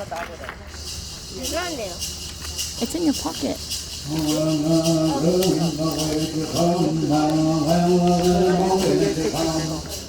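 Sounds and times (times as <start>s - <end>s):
man singing long notes: 4.1s - 10.0s.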